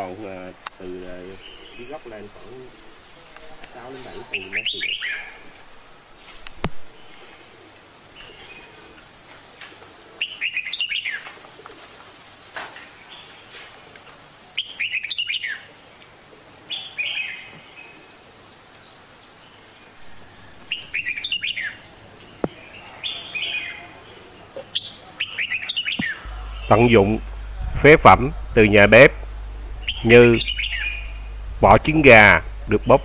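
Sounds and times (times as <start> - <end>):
bird chirping: 0.0 - 5.6, 10.2 - 11.3, 14.6 - 15.7, 18.7 - 33.0.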